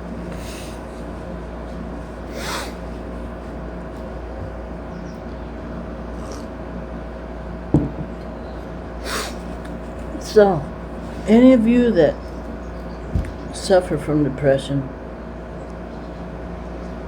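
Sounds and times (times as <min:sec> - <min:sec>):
low room hum: 0:00.0 - 0:17.0
breathy sniff: 0:00.3 - 0:01.1, 0:02.2 - 0:03.3, 0:06.2 - 0:06.5, 0:09.0 - 0:10.1.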